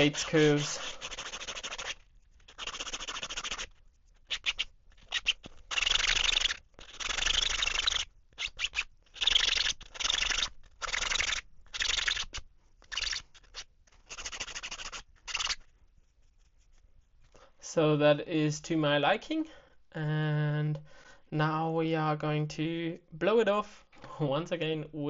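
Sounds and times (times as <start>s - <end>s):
sanding block rasping: 0.0s - 3.7s, 4.3s - 15.6s.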